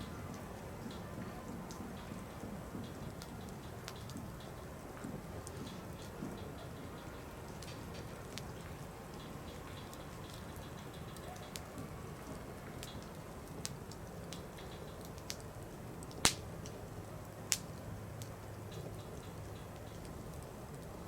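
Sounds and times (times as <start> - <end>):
campfire crackling: 0.0 - 21.0
sharp wood snaps: 16.2 - 16.8.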